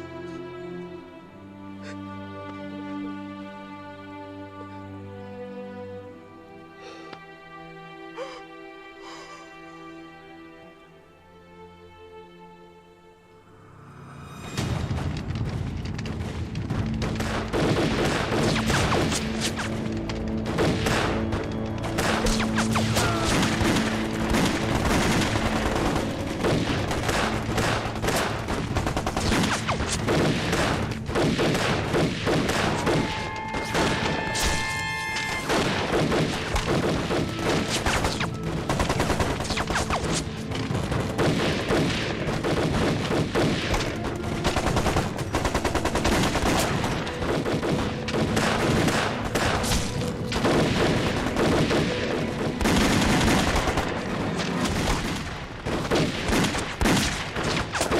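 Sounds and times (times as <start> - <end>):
film score music: 0.0 - 57.9
rifle and machine-gun fire: 16.1 - 19.8, 20.4 - 57.9.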